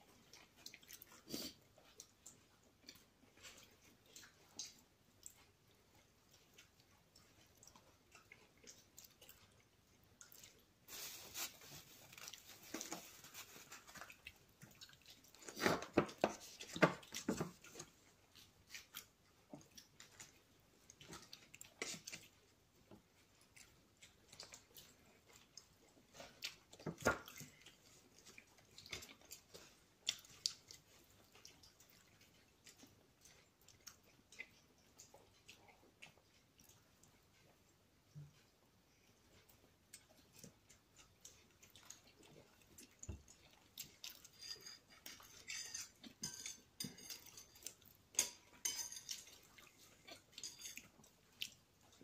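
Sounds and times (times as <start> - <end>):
mouth chewing wet clicks: 0.1 - 10.8, 16.4 - 44.4, 49.2 - 52.0.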